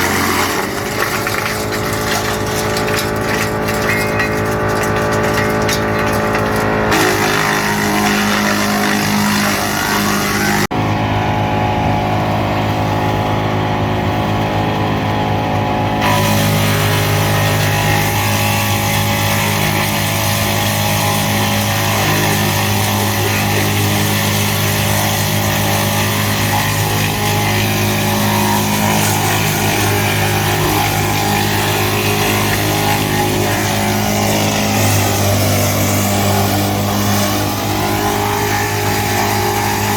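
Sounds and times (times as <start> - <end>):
tractor engine driving woodchipper: 0.0 - 39.9.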